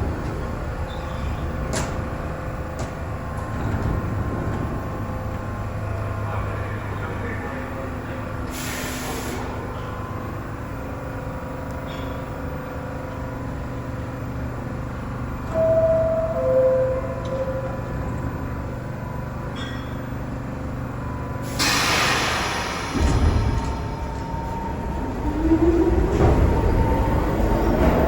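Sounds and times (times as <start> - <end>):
subway train humming: 0.0 - 28.0
loud air hiss: 8.5 - 9.6, 21.4 - 23.6
two-note door chime: 15.5 - 18.1.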